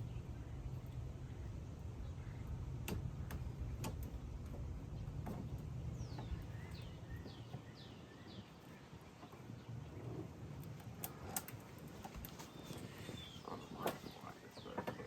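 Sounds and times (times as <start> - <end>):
low steady rumble: 0.0 - 14.8
small bird chirping: 4.9 - 9.7, 12.4 - 14.8.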